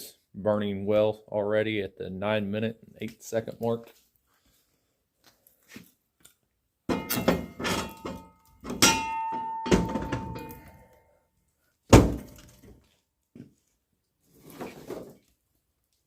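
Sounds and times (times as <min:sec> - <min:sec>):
metal clanks and thunks: 0:06.9 - 0:10.8, 0:11.9 - 0:12.8.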